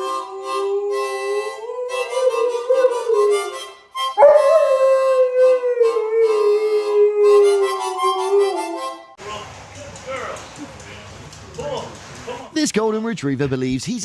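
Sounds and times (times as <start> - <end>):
dog howling: 0.0 - 3.6, 4.2 - 8.9
harmonica playing: 0.0 - 9.2.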